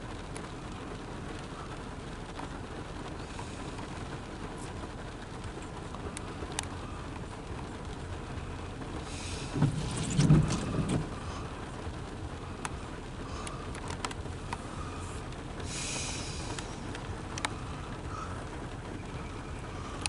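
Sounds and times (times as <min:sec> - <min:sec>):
low thumps and hiss: 0:00.1 - 0:20.0
freight train rumbling: 0:02.8 - 0:20.0
wheels clicking on rail: 0:08.8 - 0:20.0.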